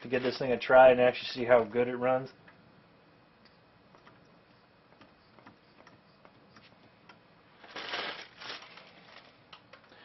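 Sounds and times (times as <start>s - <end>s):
light clicks and taps of parts: 3.4s - 7.2s.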